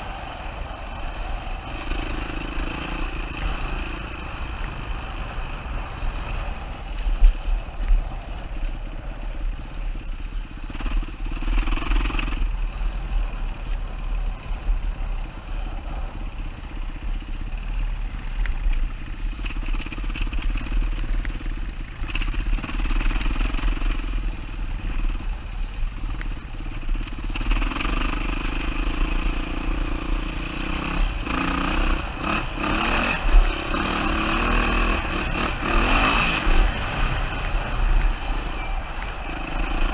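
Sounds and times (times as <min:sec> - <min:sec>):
motorcycle engine revving: 0:00.0 - 0:07.5, 0:10.5 - 0:13.4, 0:19.2 - 0:39.9.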